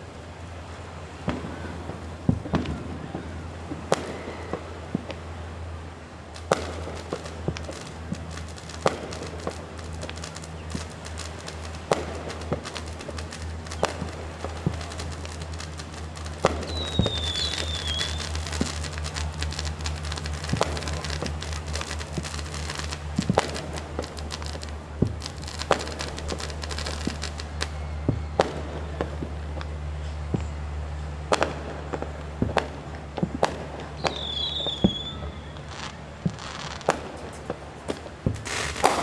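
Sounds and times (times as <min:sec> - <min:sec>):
fireworks bangs and pops: 0:01.1 - 0:39.0
firework whistle: 0:06.4 - 0:31.6, 0:33.9 - 0:37.4, 0:38.2 - 0:39.0.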